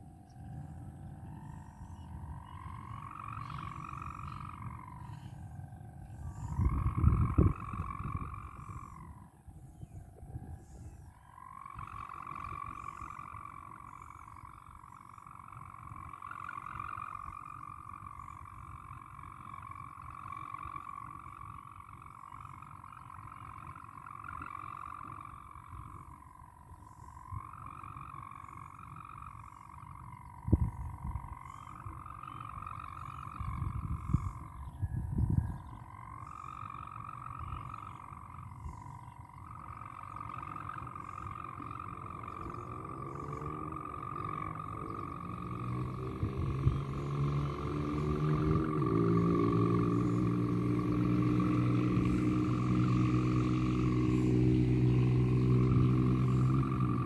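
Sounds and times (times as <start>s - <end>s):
wind buffeting microphone: 0.0s - 23.1s, 23.7s - 57.0s
kite hummer droning: 0.0s - 57.0s.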